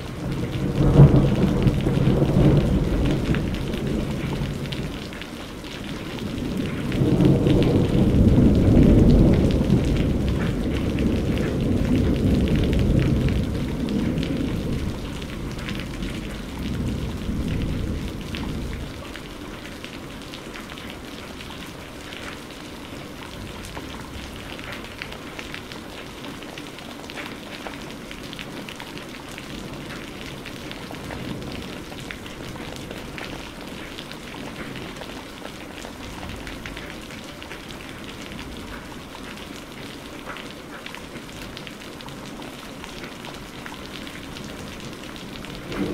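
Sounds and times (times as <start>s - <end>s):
raindrops ticking on surface: 0.0s - 45.9s
steady rain: 0.0s - 45.9s
thunder rumble: 0.1s - 5.2s, 6.1s - 19.1s, 44.8s - 45.9s.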